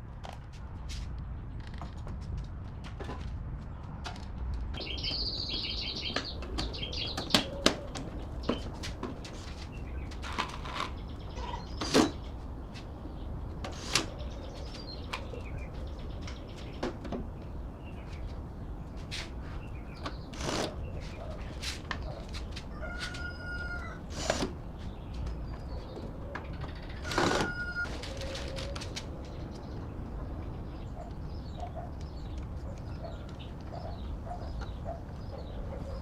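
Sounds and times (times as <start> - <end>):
bird chirping rapidly: 4.8 - 7.6.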